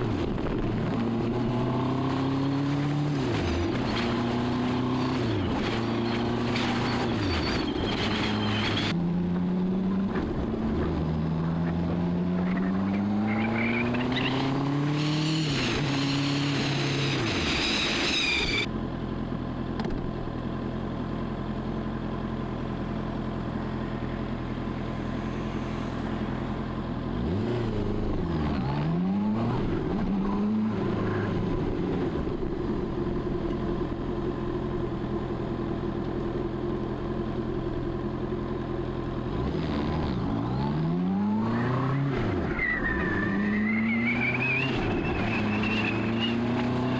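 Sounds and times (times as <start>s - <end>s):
motorcycle engine revving: 0.0s - 18.7s, 39.2s - 42.6s.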